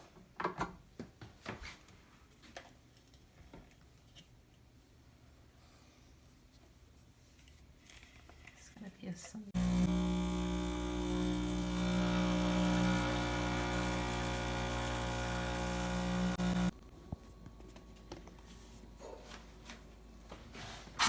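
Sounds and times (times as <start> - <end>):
espresso machine pump running: 9.6 - 16.7.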